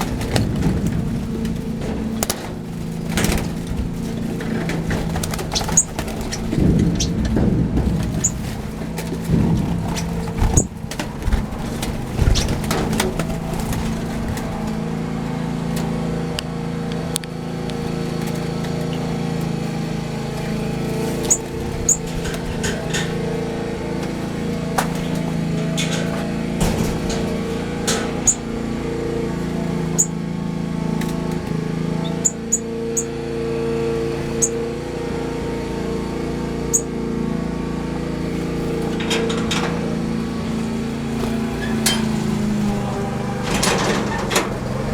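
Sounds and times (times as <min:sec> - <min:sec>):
birds chirping: 0:00.0 - 0:44.9
low motor drone: 0:00.0 - 0:44.9.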